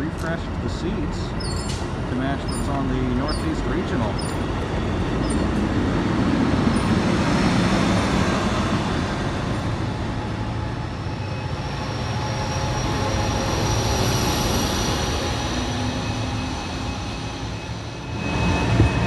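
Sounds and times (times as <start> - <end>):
train rumble and rail noise: 0.0 - 19.0.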